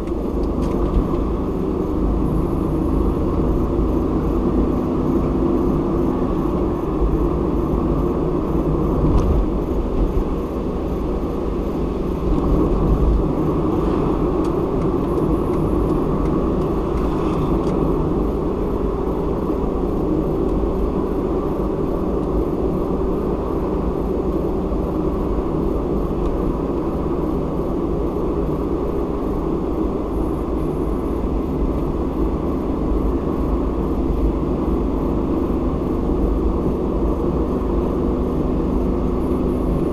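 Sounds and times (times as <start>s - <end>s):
car tyres and engine rumble: 0.0s - 39.9s.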